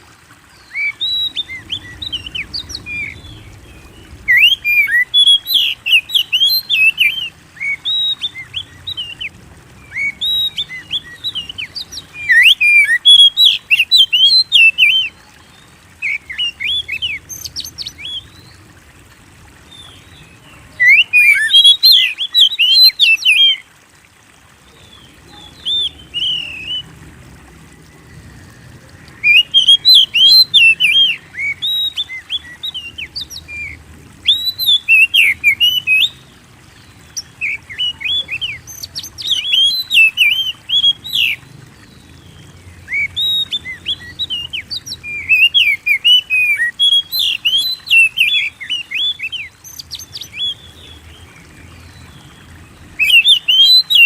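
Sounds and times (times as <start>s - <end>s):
songbird singing fast high notes: 0.6s - 9.3s.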